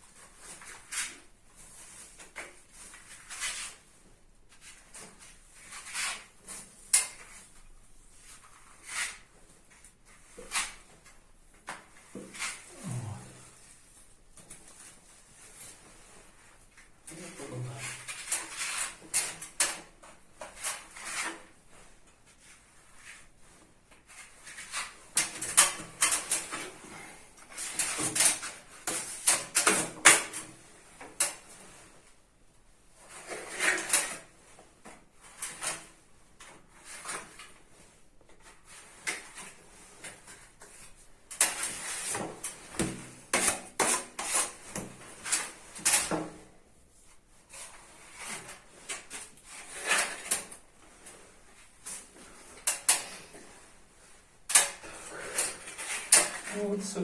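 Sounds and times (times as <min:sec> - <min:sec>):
putty knife scraping filler on wall: 0:41.3 - 0:46.4, 0:47.5 - 0:51.1, 0:54.5 - 0:56.6.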